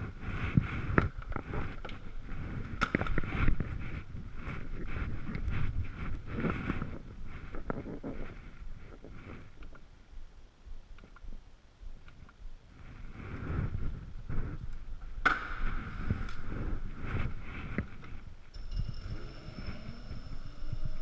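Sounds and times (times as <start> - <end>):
wind buffeting: 0.0 - 9.7, 11.9 - 21.0
scooter low rumble: 0.0 - 9.8, 12.7 - 21.0
rising motor whine: 18.6 - 21.0
steady high tone: 18.6 - 21.0.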